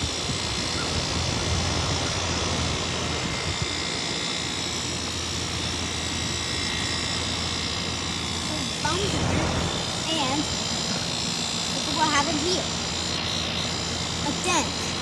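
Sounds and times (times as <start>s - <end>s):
fan rushing air: 0.0s - 15.0s
low compressor hum: 0.0s - 15.0s.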